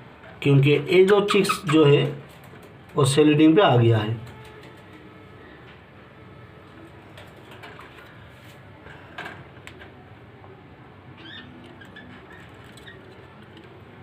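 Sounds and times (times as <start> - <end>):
budgies chirping faintly: 11.1 - 13.3.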